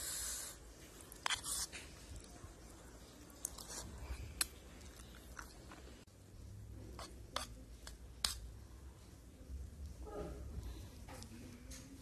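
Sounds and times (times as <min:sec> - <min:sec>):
person chewing noodles: 0:03.4 - 0:06.0.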